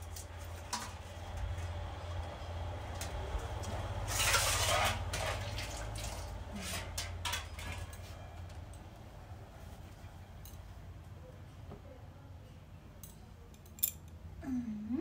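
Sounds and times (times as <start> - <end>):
water pouring: 3.9 - 8.0
metal cooking pot clinking: 6.1 - 8.0.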